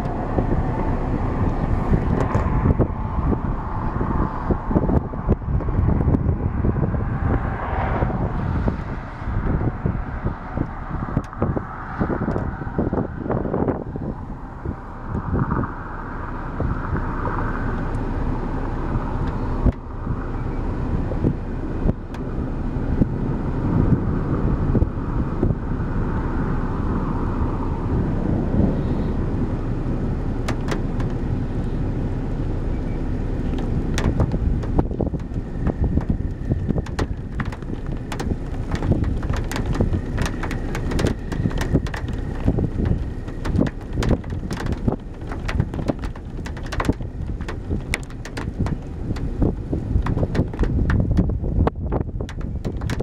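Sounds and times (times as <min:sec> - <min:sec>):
wind rumbling around vehicle: 0:00.0 - 0:53.0
raindrops tapping on vehicle: 0:01.3 - 0:02.9, 0:09.4 - 0:12.6, 0:18.7 - 0:20.2, 0:21.2 - 0:22.3, 0:30.4 - 0:31.5, 0:33.4 - 0:53.0.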